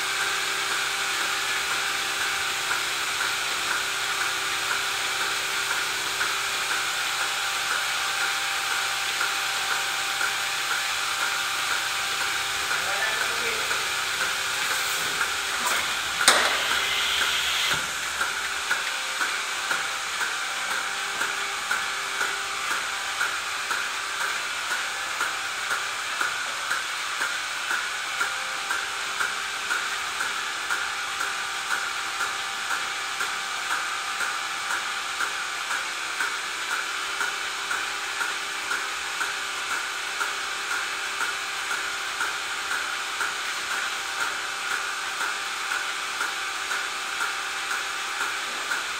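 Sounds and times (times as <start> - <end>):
pulsing mechanical hiss: 12.2 - 20.8
sharp click: 15.6 - 17.8.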